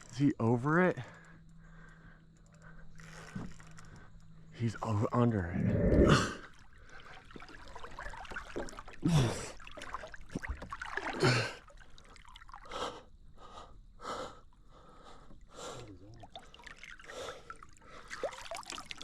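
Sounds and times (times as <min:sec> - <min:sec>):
short low grunt: 0:05.4 - 0:06.4
person breathing hard: 0:05.6 - 0:06.4, 0:12.7 - 0:15.9
trickling river water: 0:06.1 - 0:12.9, 0:15.3 - 0:19.0.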